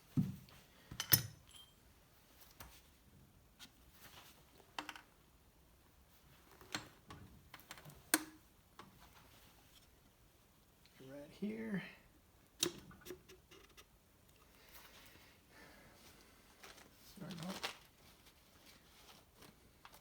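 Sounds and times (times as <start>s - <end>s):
sharp metal clinks: 1.0s - 1.8s.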